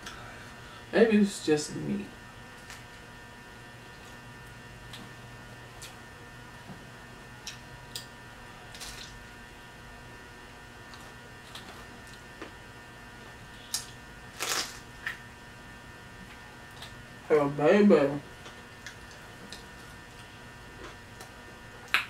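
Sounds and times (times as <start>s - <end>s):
electrical hum: 0.0s - 22.0s
pizza chewing: 10.5s - 15.3s, 18.3s - 22.0s
crunchy bites: 13.6s - 15.2s.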